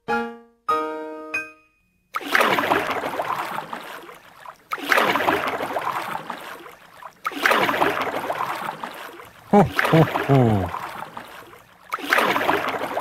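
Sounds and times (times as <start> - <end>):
water splashing from paddling: 2.2 - 13.0.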